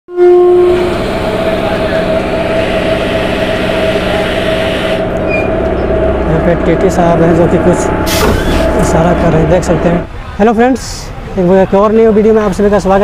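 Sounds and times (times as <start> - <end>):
train rumble: 0.1 - 13.0
constant hum: 0.6 - 11.4
brief pitched tone: 5.2 - 5.9.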